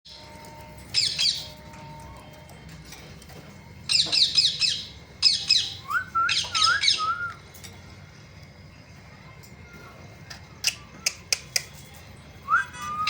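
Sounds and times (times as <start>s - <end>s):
whistled notes: 5.6s - 7.4s, 12.4s - 13.0s.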